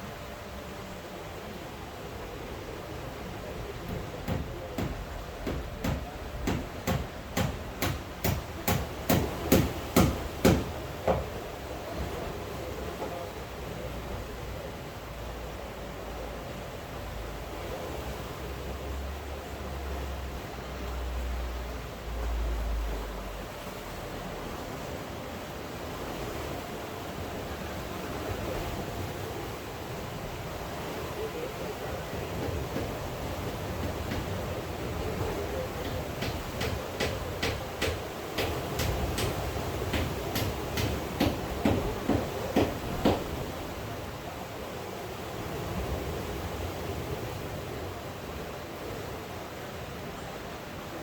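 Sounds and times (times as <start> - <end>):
rain: 0.0 - 51.0
sea surf: 0.0 - 51.0
evenly spaced knocks: 3.9 - 11.4, 32.4 - 35.2, 35.8 - 43.4.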